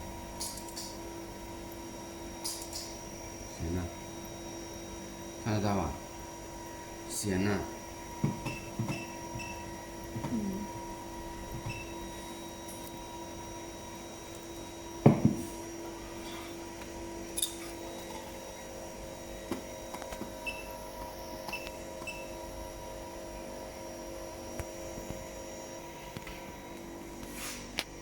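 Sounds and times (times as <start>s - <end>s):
electrical hum of equipment: 0.0s - 28.0s.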